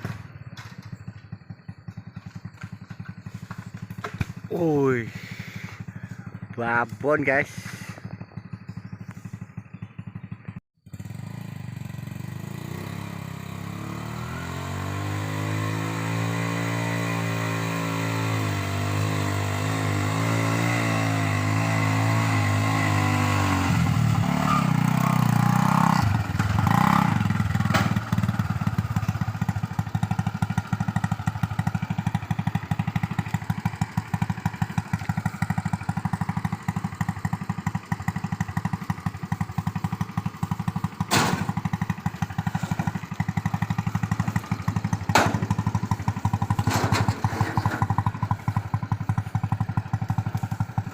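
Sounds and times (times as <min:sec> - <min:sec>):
motorcycle engine running: 0:00.0 - 0:50.9
vehicle clattering: 0:44.2 - 0:48.2
sharp knocks: 0:45.1 - 0:45.6.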